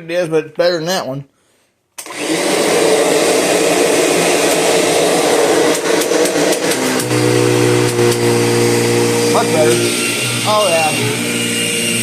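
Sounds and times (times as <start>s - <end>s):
vacuum cleaner clicks: 2.0s - 2.6s, 3.9s - 8.8s
vacuum cleaner motor hum: 2.0s - 12.0s.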